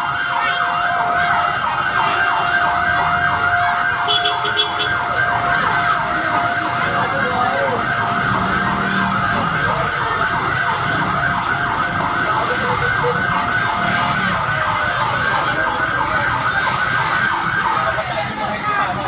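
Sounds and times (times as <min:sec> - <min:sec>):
emergency siren yelping: 0:00.0 - 0:19.0.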